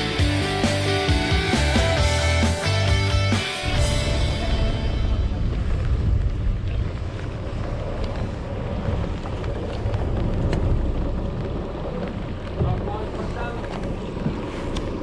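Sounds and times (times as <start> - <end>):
water noise: 0.0 - 15.0
boat engine running: 3.6 - 15.0
wind buffeting microphone: 4.4 - 15.0.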